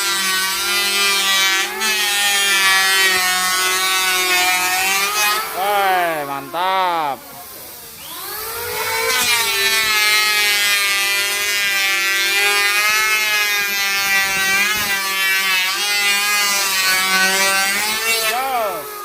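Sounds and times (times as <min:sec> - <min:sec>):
power tool motor whine: 0:07.8 - 0:19.0.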